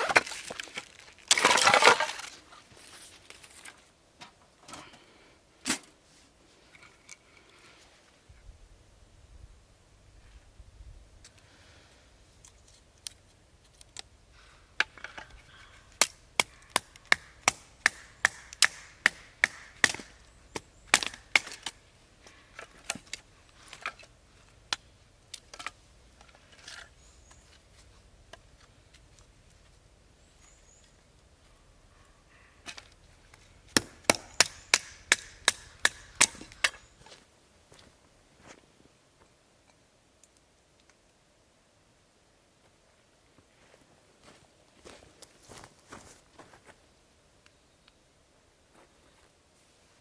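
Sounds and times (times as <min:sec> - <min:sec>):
firewood being chopped: 0:01.3 - 0:02.3, 0:14.8 - 0:24.0, 0:32.7 - 0:36.9.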